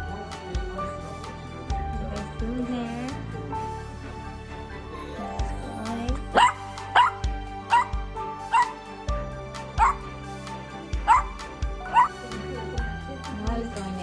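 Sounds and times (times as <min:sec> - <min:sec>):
dog yelping: 0:06.3 - 0:07.9, 0:08.5 - 0:08.8, 0:09.8 - 0:10.0, 0:11.0 - 0:12.2.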